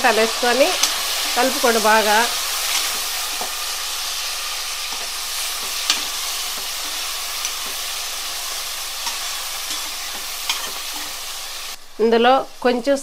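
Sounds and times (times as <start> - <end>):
vegetables sizzling in hot oil: 0.0 - 13.0
metal spatula scraping pan: 4.8 - 11.4.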